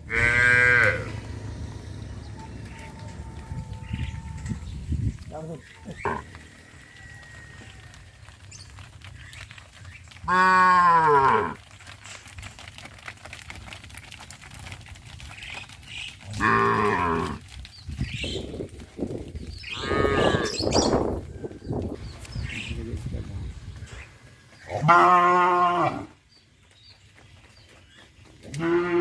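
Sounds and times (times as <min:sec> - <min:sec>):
cows mooing: 0:00.0 - 0:01.4, 0:05.8 - 0:08.0, 0:10.3 - 0:11.6, 0:16.3 - 0:17.4, 0:19.7 - 0:20.7, 0:24.7 - 0:26.1, 0:28.5 - 0:29.0.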